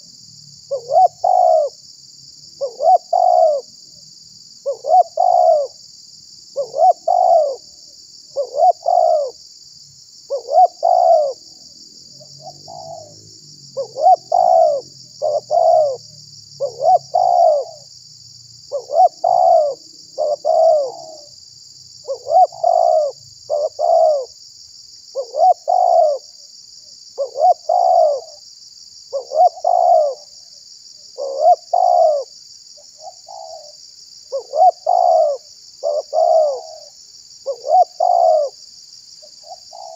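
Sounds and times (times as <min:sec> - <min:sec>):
dove cooing: 0:00.7 - 0:01.8, 0:02.6 - 0:03.7, 0:04.6 - 0:05.8, 0:06.6 - 0:07.7, 0:08.3 - 0:09.4, 0:10.3 - 0:11.5, 0:12.2 - 0:13.2, 0:13.8 - 0:17.9, 0:18.7 - 0:21.3, 0:22.0 - 0:24.4, 0:25.2 - 0:26.3, 0:27.2 - 0:28.4, 0:29.1 - 0:30.3, 0:31.2 - 0:32.3, 0:33.0 - 0:38.6, 0:39.3 - 0:39.9.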